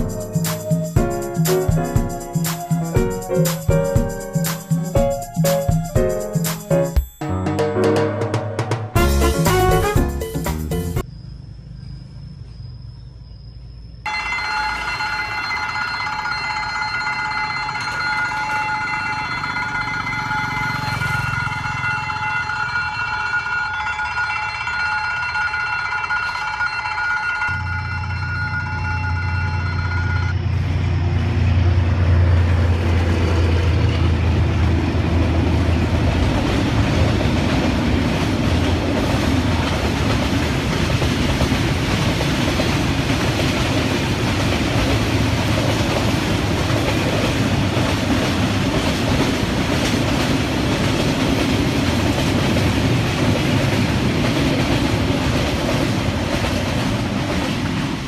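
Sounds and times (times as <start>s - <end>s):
train wheels rushing: 30.4s - 58.0s.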